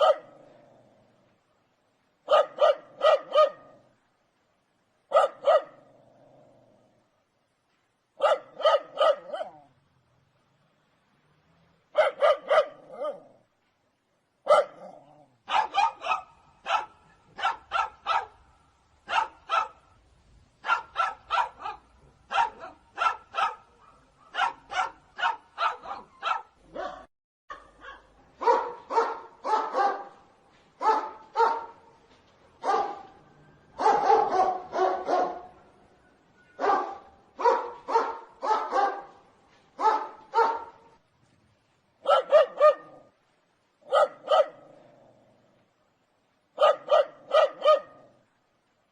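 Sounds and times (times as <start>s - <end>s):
dogs barking: 0.0s - 0.4s, 2.3s - 3.8s, 5.1s - 5.8s, 8.2s - 9.6s, 11.9s - 13.3s, 14.5s - 18.4s, 19.0s - 19.8s, 20.6s - 30.2s, 30.8s - 31.8s, 32.6s - 33.2s, 33.8s - 35.5s, 36.6s - 39.2s, 39.8s - 40.9s, 42.0s - 43.1s, 43.8s - 44.7s, 46.6s - 48.1s.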